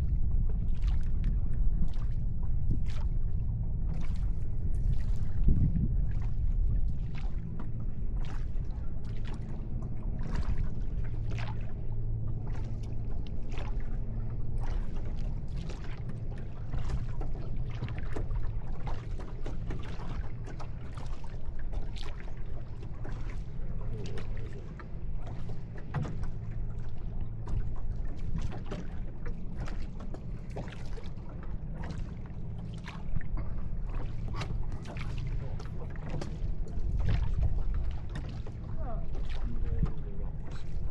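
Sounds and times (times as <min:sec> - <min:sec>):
boat engine low rumble: 0:00.0 - 0:40.9
water splashing: 0:14.6 - 0:40.9.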